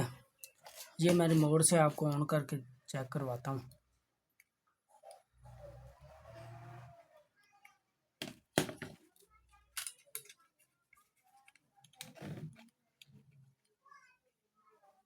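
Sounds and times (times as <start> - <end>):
objects clicking and knocking: 8.2 - 13.3.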